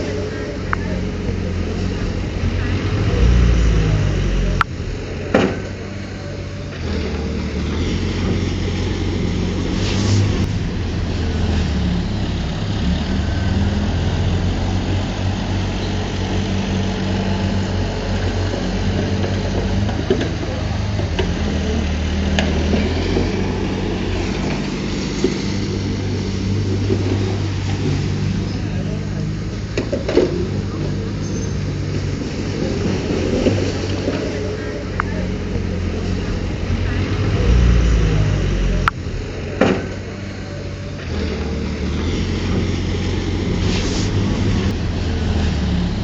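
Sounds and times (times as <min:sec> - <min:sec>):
diesel engine of heavy machine: 0:00.0 - 0:46.0.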